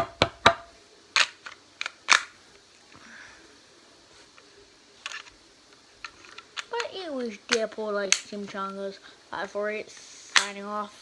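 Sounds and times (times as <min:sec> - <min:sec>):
plastic clicks of pistol handling: 0:01.2 - 0:02.3, 0:05.0 - 0:06.9, 0:07.5 - 0:08.4, 0:10.3 - 0:10.6.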